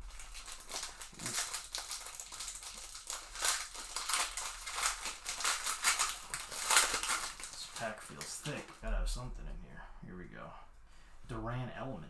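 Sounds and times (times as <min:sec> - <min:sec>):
plastic wrapper crinkling: 0:00.0 - 0:08.8.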